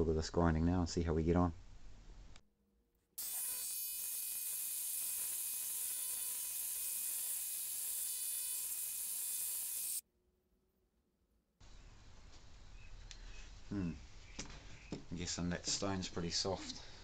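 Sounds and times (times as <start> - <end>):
rotary grinder whining: 3.2 - 10.0.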